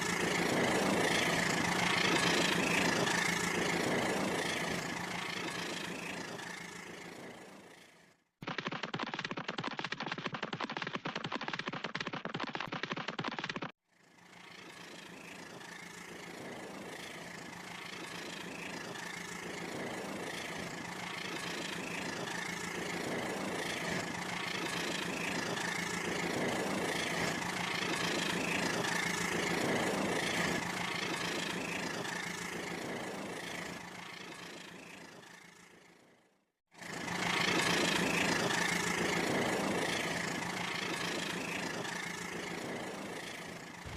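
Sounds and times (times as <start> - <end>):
toy train motor whine: 13.9 - 35.7.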